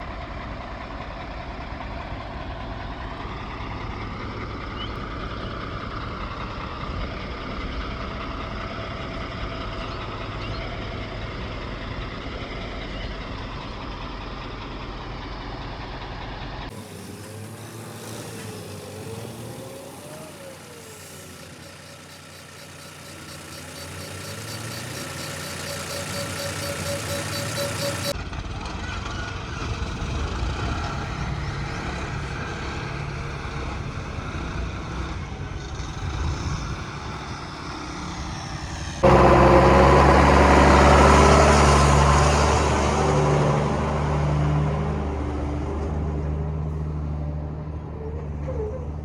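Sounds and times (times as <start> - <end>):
heavy vehicle engines rumbling: 0.0 - 49.0
wavering whine: 16.8 - 28.2
steady pulsing tone: 21.2 - 28.2.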